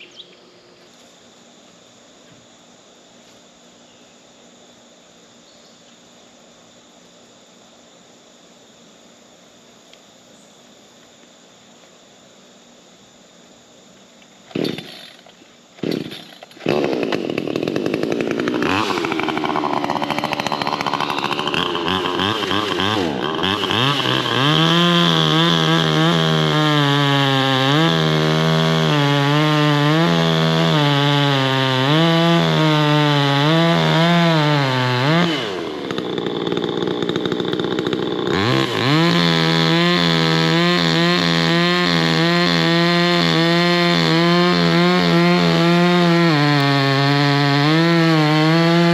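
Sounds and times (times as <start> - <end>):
chainsaw engine revving: 14.5 - 48.9.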